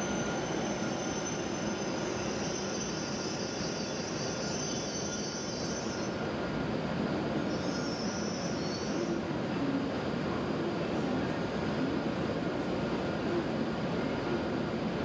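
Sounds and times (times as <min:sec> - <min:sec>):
high brake squeal: 0:00.0 - 0:06.4, 0:07.4 - 0:09.3
high-speed train running noise: 0:00.0 - 0:15.0.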